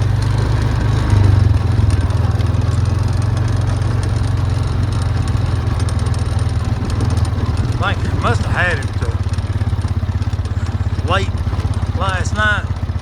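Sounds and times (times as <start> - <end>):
farm vehicle engine running: 0.0 - 13.0.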